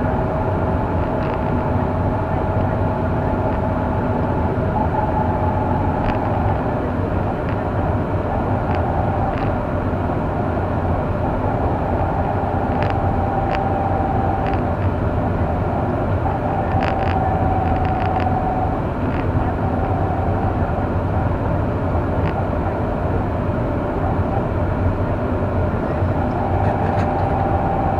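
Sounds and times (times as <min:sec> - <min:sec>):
car engine and road noise: 0:00.0 - 0:27.9.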